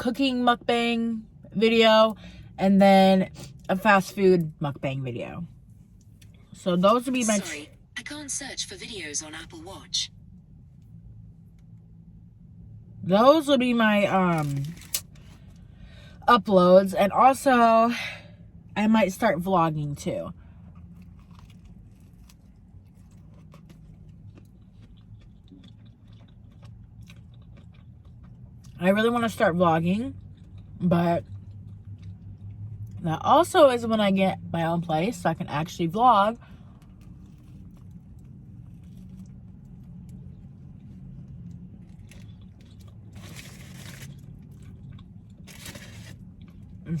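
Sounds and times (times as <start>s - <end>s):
low steady hum: 0.0s - 47.0s
person chewing food: 20.6s - 28.8s, 36.8s - 46.8s.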